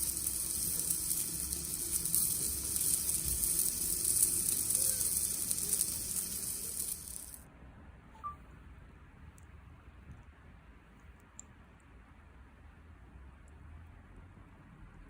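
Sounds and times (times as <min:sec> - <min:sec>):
meat sizzling on a griddle: 0:00.0 - 0:07.4.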